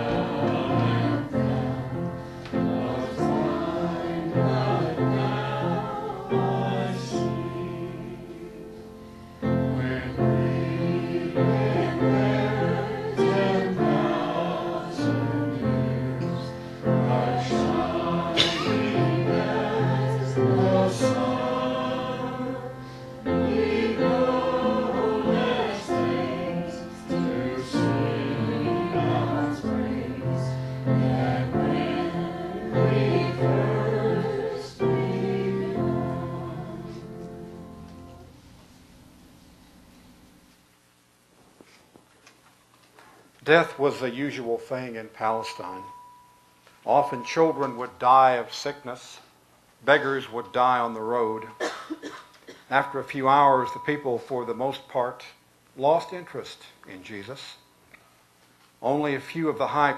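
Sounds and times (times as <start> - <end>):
choir singing sacred music: 0.0 - 38.4, 43.8 - 46.1, 46.9 - 52.1, 52.7 - 54.8.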